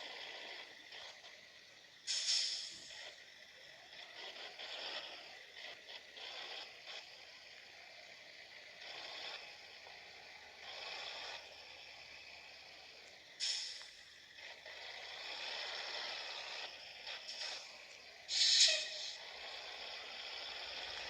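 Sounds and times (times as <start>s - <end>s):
truck road and wind noise: 0.0s - 21.0s.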